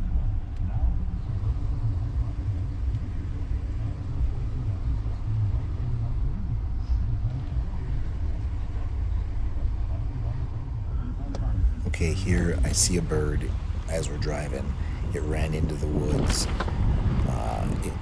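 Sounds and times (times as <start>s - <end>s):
vehicle engine rumble: 0.0s - 18.0s
road noise: 11.5s - 18.0s.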